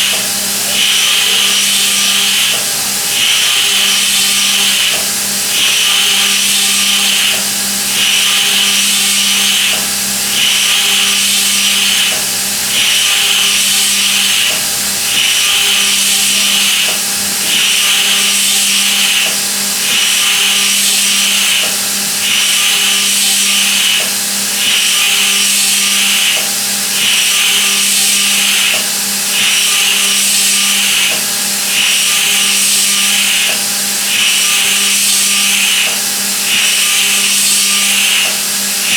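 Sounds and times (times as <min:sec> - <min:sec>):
machine hum: 0:00.0 - 0:38.9
milling cutter cutting metal: 0:00.0 - 0:38.9.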